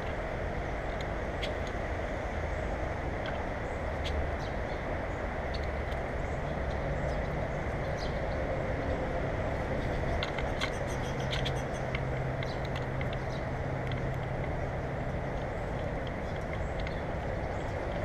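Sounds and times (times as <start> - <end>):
low rumbling background hum: 0.0 - 18.0
small birds chirping: 3.5 - 8.5, 9.8 - 18.0.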